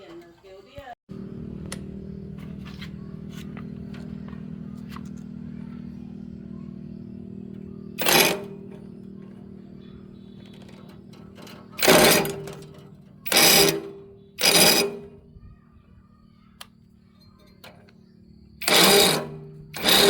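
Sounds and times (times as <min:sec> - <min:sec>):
bursts of harsh noise: 0:01.1 - 0:15.3, 0:18.6 - 0:20.0
machine humming: 0:01.1 - 0:20.0.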